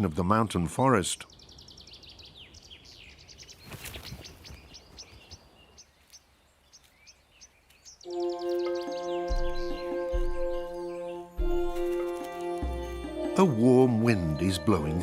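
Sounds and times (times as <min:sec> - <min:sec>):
small birds chirping: 0:00.0 - 0:15.0
sustained musical chord: 0:08.1 - 0:15.0.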